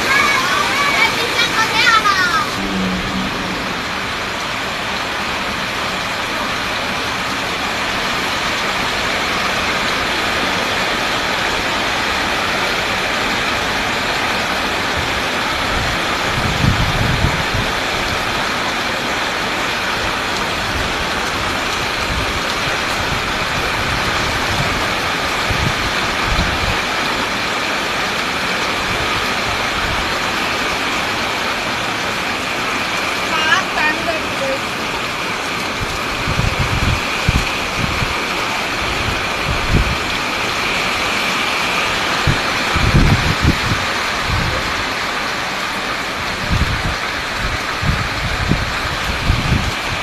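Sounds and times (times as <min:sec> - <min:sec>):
heavy rain falling: 0:00.0 - 0:50.0
low rumble: 0:02.2 - 0:06.1.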